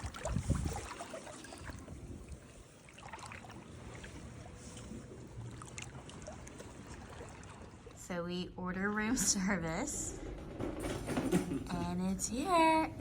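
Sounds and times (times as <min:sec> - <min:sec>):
sea water lapping at shore: 0:00.0 - 0:09.8.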